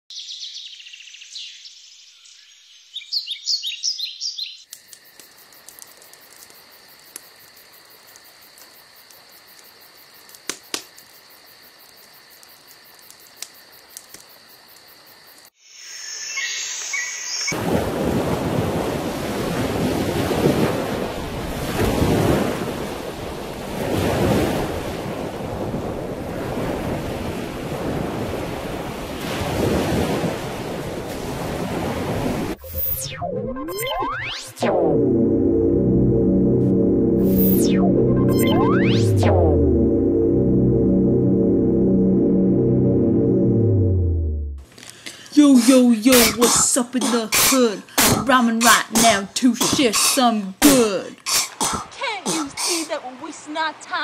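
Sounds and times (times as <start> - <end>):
birds chirping: 15.9 - 17.6
waves washing in: 17.5 - 33.0.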